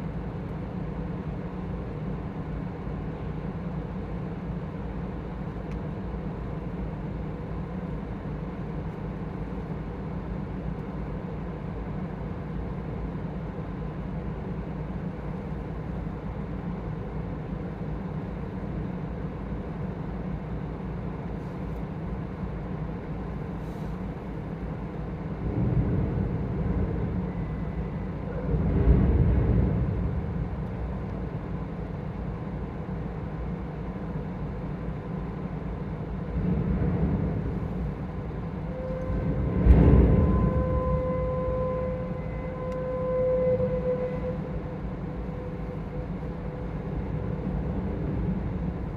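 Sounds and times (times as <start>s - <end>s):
ferry machinery drone: 0.0s - 48.9s
loud low rumbles: 24.8s - 32.2s, 35.4s - 48.9s.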